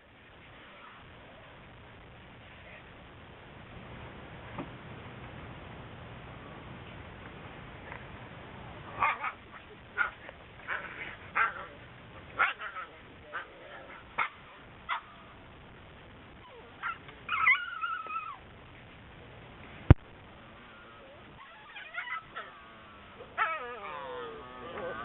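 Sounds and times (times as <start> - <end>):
puppies yipping: 16.4 - 18.4, 20.7 - 25.0
puppy whining: 16.4 - 18.4, 20.7 - 25.0.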